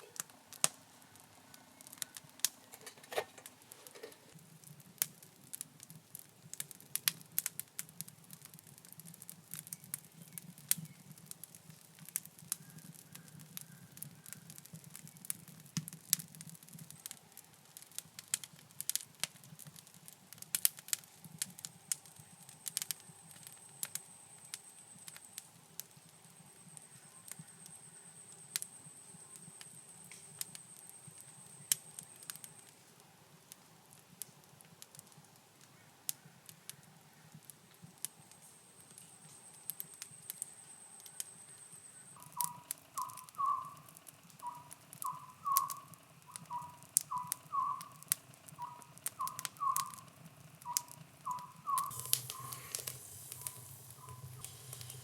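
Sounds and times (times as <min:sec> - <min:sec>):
wood fire crackling: 0:00.0 - 0:55.0
short chirping call: 0:42.1 - 0:48.0, 0:48.6 - 0:50.0, 0:50.6 - 0:55.0
thin high steady tone: 0:51.8 - 0:55.0.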